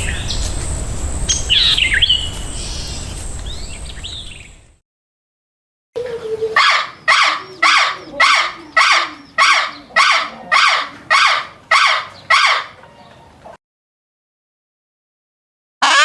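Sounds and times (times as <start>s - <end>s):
large bird harsh call: 6.4s - 12.8s.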